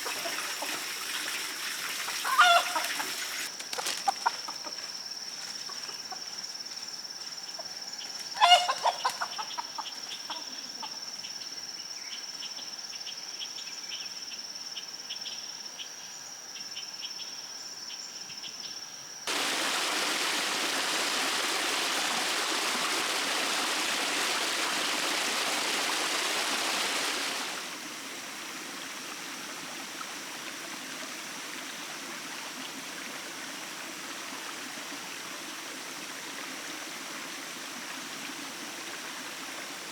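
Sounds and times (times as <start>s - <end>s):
running water rushing: 0.0s - 3.5s, 19.3s - 39.9s
rooster crowing: 2.2s - 3.1s.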